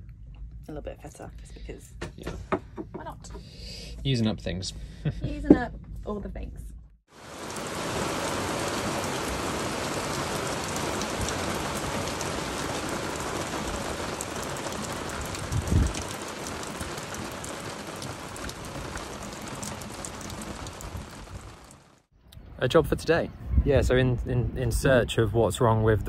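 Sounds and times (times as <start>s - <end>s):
low thump: 5.3s - 6.0s
rain pattering on a boat deck: 7.1s - 22.1s.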